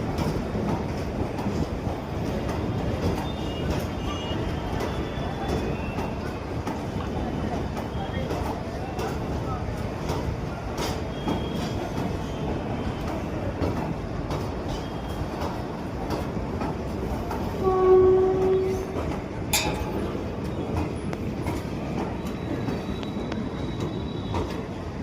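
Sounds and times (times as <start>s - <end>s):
train wheels rumbling and clicking: 0.0s - 25.0s
train horn blast: 17.6s - 19.0s.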